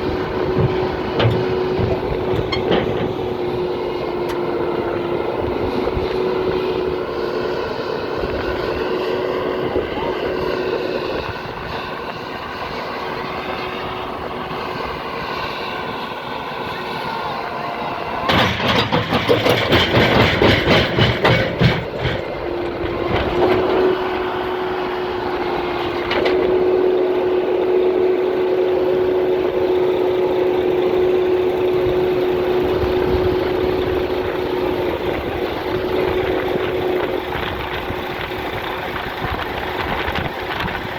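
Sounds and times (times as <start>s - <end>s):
loud rough rattling clatter: 0.0s - 7.2s, 18.2s - 26.4s, 30.7s - 40.9s
heavy vehicle engine humming: 0.0s - 40.9s.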